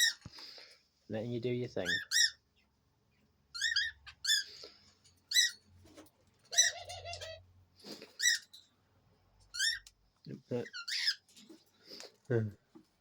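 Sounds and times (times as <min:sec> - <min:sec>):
cockatiels chirping: 0:03.6 - 0:04.6.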